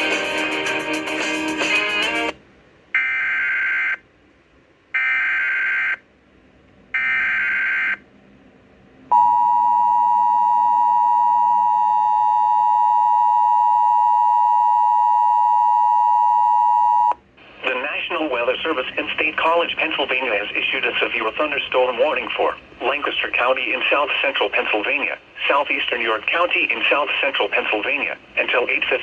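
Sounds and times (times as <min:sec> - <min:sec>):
two-tone attention signal: 0:09.1 - 0:17.2.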